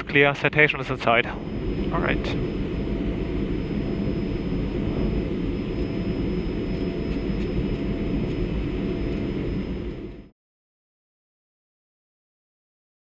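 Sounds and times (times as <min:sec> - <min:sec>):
faint high whine: 0:00.0 - 0:10.3
jet cockpit rumble: 0:00.0 - 0:10.3.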